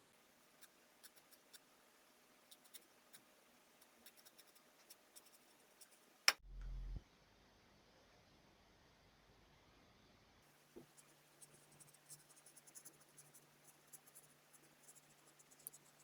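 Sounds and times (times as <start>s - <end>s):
brief low hum: 6.4s - 7.0s.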